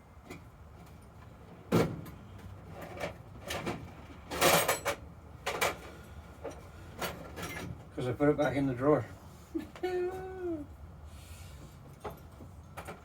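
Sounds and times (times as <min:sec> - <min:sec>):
tool drawers opening and shutting: 0:01.6 - 0:05.8
tools clattering: 0:02.9 - 0:05.8.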